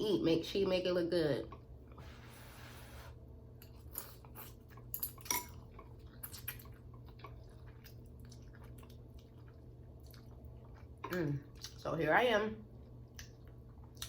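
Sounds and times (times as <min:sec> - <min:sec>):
low room hum: 0:00.0 - 0:14.0
chewing: 0:03.8 - 0:11.8, 0:12.7 - 0:14.0.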